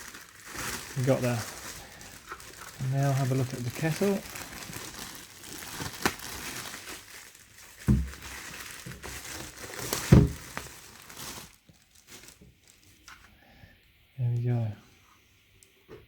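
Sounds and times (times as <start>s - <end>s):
packaging crinkling and rustling: 0.0s - 13.3s
dull thumps: 7.9s - 8.2s, 10.0s - 10.6s.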